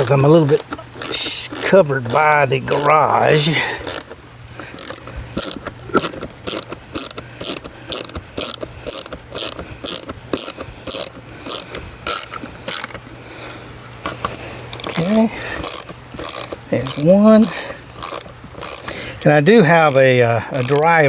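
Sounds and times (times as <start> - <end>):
socket ratchet clicking: 0.0 - 13.0, 14.0 - 21.0.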